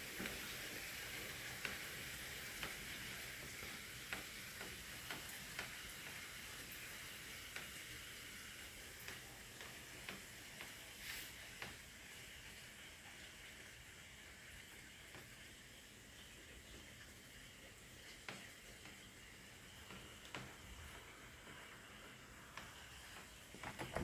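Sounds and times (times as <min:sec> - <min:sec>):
raindrops tapping: 0:00.0 - 0:13.3, 0:16.2 - 0:24.0
light rain hiss: 0:00.0 - 0:24.0.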